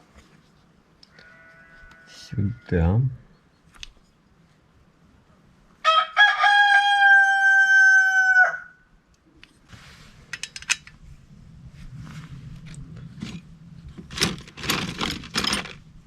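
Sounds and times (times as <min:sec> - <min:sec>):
rooster crowing: 0:05.8 - 0:08.9.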